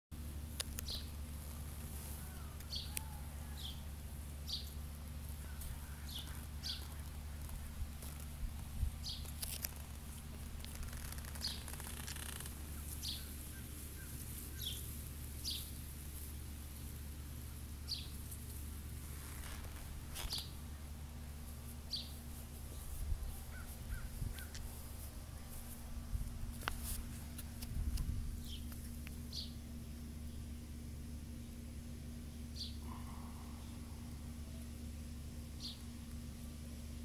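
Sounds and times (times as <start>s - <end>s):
bird chirping: 2.1s - 8.2s, 8.9s - 9.4s, 10.8s - 15.8s, 16.7s - 18.4s, 21.9s - 24.6s, 28.4s - 30.6s, 32.5s - 32.9s.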